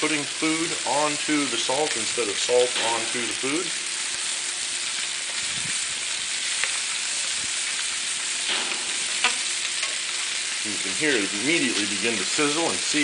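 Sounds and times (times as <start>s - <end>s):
chicken sizzling: 0.0s - 13.0s.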